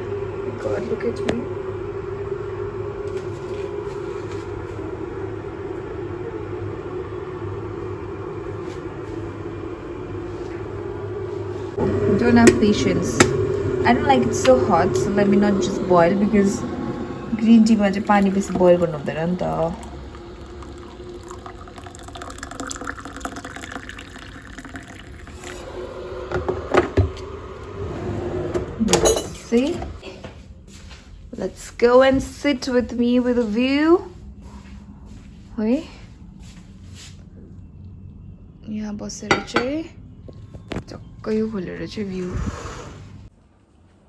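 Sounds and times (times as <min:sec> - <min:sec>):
electric kettle heating water: 0:00.0 - 0:30.0
water pouring into cup: 0:16.6 - 0:27.2.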